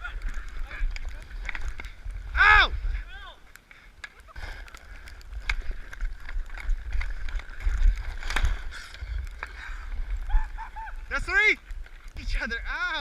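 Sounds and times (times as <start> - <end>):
sticks and puck clacking: 0.0 - 2.3, 3.4 - 10.2
skates scraping on ice: 0.0 - 2.4, 3.6 - 13.0
wind buffeting microphone: 0.0 - 3.4, 4.3 - 13.0.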